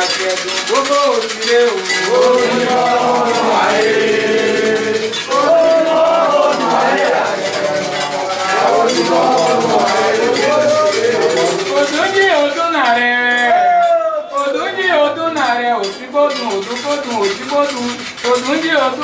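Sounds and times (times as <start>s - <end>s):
clinking metal percussion: 0.0s - 19.0s
voices chanting in held notes: 1.4s - 12.3s.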